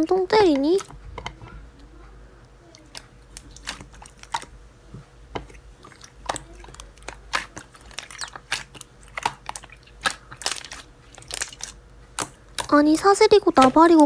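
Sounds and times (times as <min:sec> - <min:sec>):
sharp clicks and crunches: 0:06.2 - 0:12.8.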